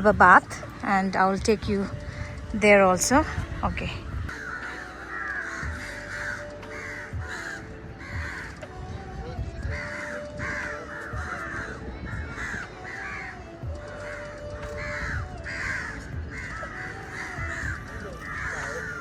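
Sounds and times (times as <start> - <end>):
crows cawing: 4.0 - 8.7, 9.8 - 19.0.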